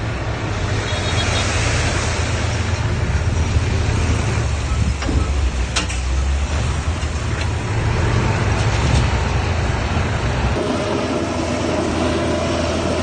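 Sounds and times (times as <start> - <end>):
heavy machinery diesel engine rumbling: 0.0 - 13.0.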